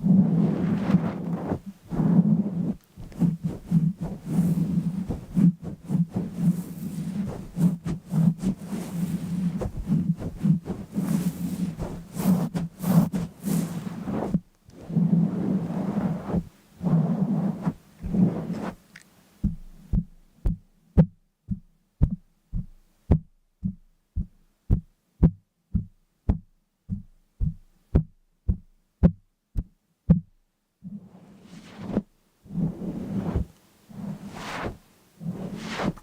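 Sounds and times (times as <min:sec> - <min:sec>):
rustling or scraping: 0:00.0 - 0:20.0, 0:30.8 - 0:36.0.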